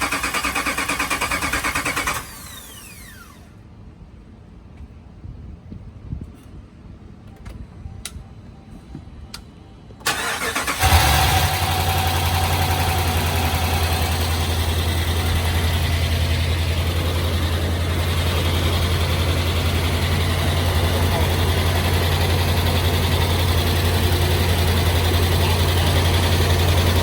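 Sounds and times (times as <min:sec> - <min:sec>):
starter cranking: 0:00.0 - 0:03.3
engine idling: 0:00.0 - 0:03.6, 0:10.1 - 0:27.0.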